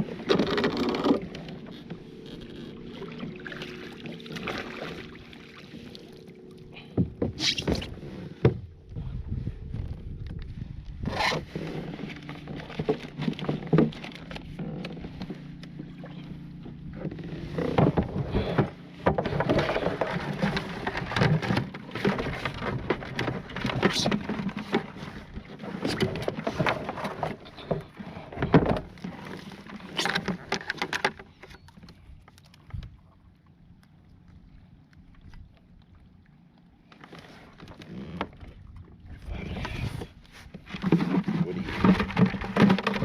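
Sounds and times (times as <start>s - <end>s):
water splashing: 0.0s - 8.1s
knocks and rattles against kayak: 0.0s - 43.0s.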